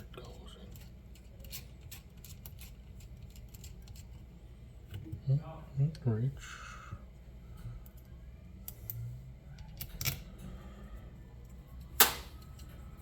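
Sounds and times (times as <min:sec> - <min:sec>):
small metal parts clicking: 0:00.6 - 0:04.2.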